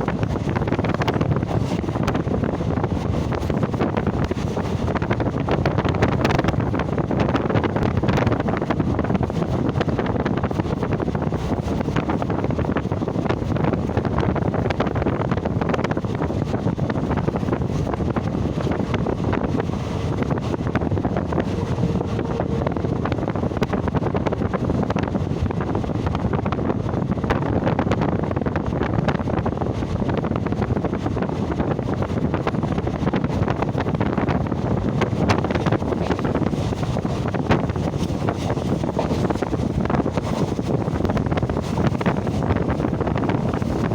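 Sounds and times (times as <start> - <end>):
wind buffeting microphone: 0.0 - 43.9
low rumble: 16.4 - 26.4.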